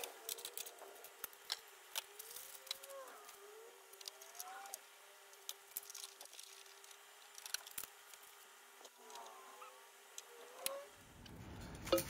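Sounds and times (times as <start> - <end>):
small parts clicking and tapping: 0.0 - 9.4
faint steady hum: 0.0 - 12.0.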